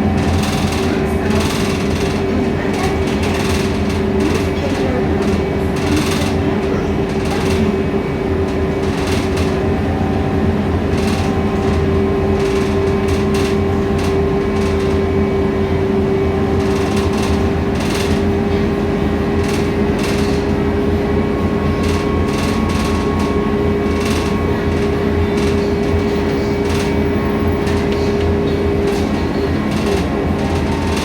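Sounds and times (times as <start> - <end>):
bus engine drone: 0.0 - 31.0
rattles inside bus: 0.0 - 31.0.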